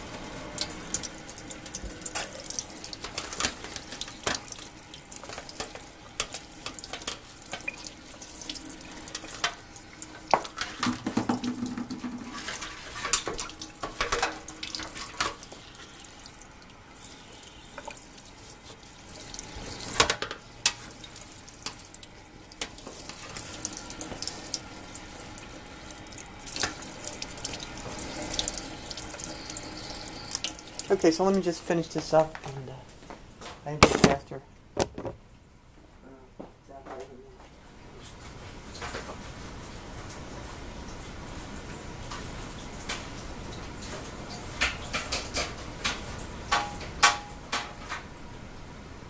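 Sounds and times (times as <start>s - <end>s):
tap water running into sink: 0.0s - 32.2s
water splashes and knocks: 10.2s - 15.4s, 33.7s - 35.2s.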